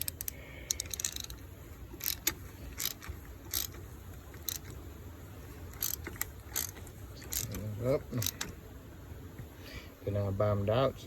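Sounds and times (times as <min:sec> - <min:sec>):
hand ratchet clicking: 0:00.0 - 0:04.8, 0:05.7 - 0:08.6.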